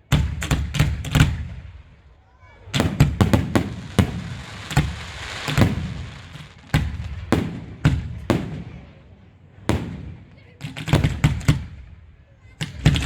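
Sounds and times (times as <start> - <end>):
firework bangs: 0.1 - 2.0, 2.6 - 13.0
noisy hiss: 3.4 - 9.7.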